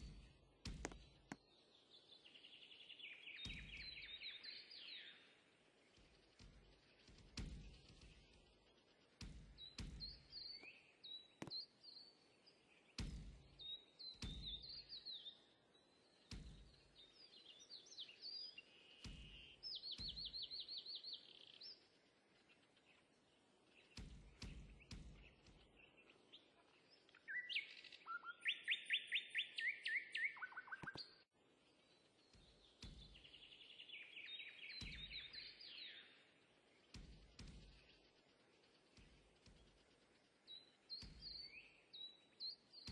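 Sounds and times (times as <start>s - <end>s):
soft low thumps: 0.0s - 1.4s, 3.4s - 4.3s, 5.8s - 10.7s, 13.0s - 14.9s, 16.2s - 17.0s, 19.0s - 20.5s, 23.8s - 25.8s, 32.2s - 33.5s, 34.8s - 35.4s, 36.8s - 41.8s
small birds chirping: 0.0s - 42.9s.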